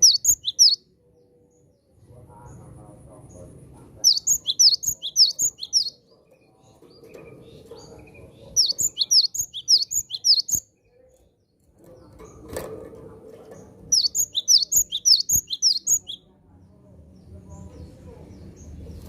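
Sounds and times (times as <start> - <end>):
bird singing whistled notes: 0.0 - 0.9, 4.1 - 6.0, 8.6 - 10.7, 13.9 - 16.2.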